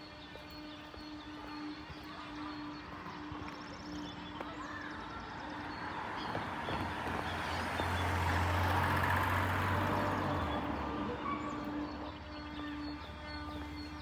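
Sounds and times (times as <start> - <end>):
small birds chirping: 0.0 - 14.0
vehicle passing by: 5.3 - 14.0.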